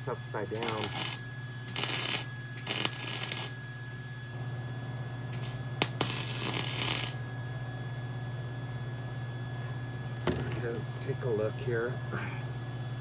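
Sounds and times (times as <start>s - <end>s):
arc welder crackling: 0.5s - 3.7s, 5.4s - 7.3s.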